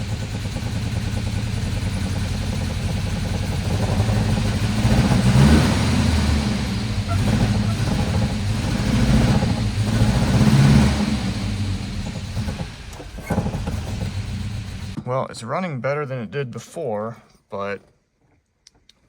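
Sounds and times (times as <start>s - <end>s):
four-cylinder car engine running: 0.0s - 15.0s.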